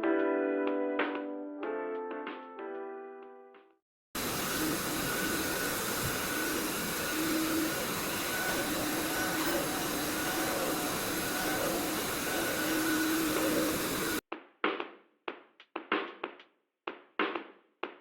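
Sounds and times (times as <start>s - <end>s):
suction fan hissing: 4.2s - 14.2s.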